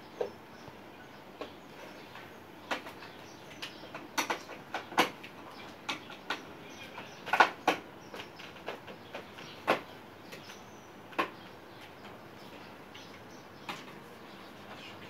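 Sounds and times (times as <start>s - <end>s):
clicks and knocks of handled parts: 2.2s - 12.2s.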